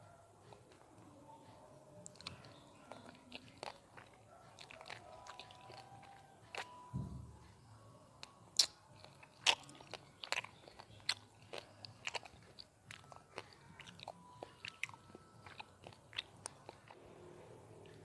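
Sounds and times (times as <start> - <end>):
mouth chewing clicks and smacks: 2.0 - 6.8, 8.2 - 17.0.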